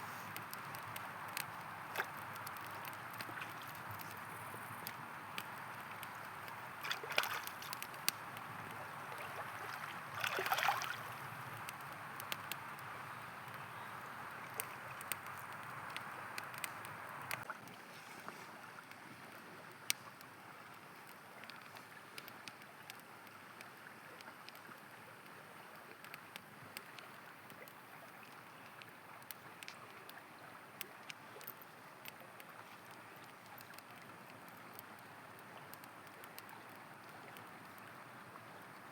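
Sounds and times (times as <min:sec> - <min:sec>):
campfire wood crackling: 0:00.0 - 0:38.9
river water flowing: 0:00.0 - 0:38.9
water gurgle: 0:00.0 - 0:38.9
river rushing: 0:09.2 - 0:11.2.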